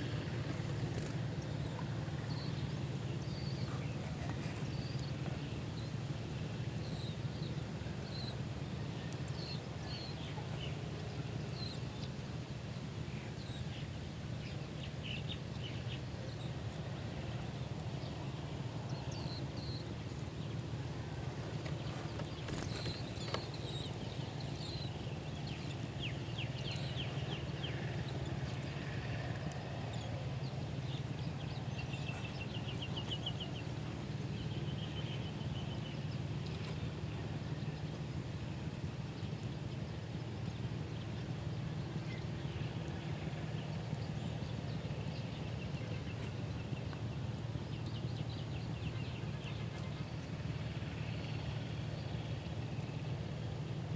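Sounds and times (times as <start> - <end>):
small birds chirping: 21.4 - 28.5.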